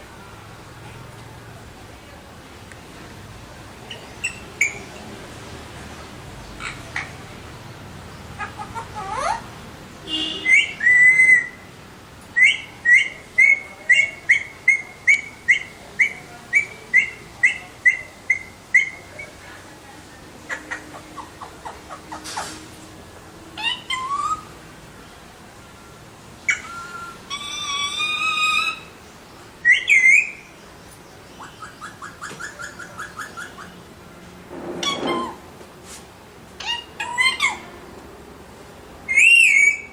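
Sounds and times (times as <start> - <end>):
parakeet whistled calls: 10.4 - 11.6, 26.5 - 28.9, 39.1 - 39.9.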